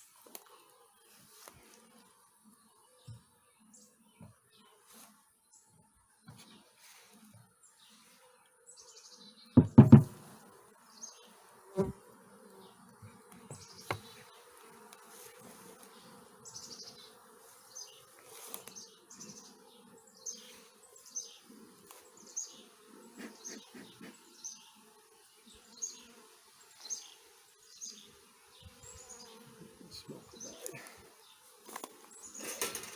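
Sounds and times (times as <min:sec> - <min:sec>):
honey bees buzzing: 0:00.0 - 0:32.9
sharp knocks: 0:09.6 - 0:10.3.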